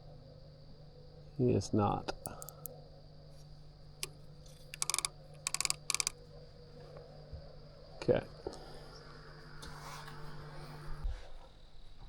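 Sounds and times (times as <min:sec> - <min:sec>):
fishing reel clicking: 0:02.3 - 0:02.7, 0:04.6 - 0:06.2.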